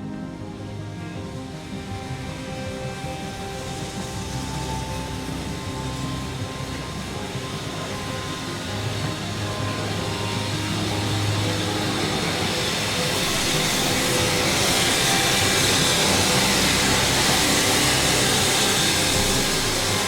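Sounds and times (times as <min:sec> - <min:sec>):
rising hiss: 0:00.0 - 0:20.0
train approaching: 0:00.0 - 0:20.0.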